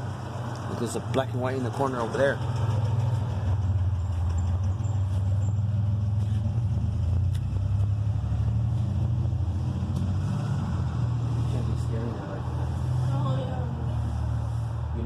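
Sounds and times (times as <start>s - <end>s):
engine idling: 0.0s - 9.5s.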